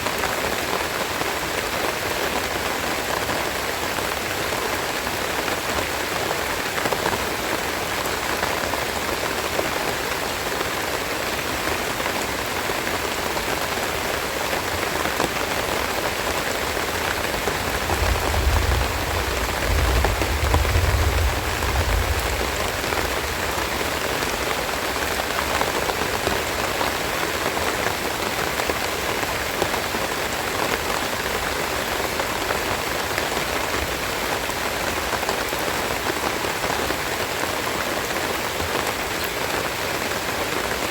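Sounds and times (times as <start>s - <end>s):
steady rain falling: 0.0s - 40.9s
low rumble: 17.6s - 23.1s.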